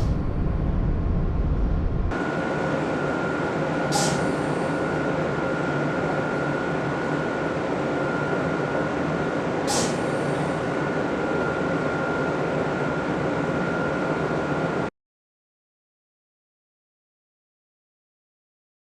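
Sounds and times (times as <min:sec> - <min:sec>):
train rumbling: 0:00.0 - 0:14.8
steady high whine: 0:00.0 - 0:14.9
short sharp hiss: 0:03.9 - 0:04.3, 0:09.7 - 0:10.1.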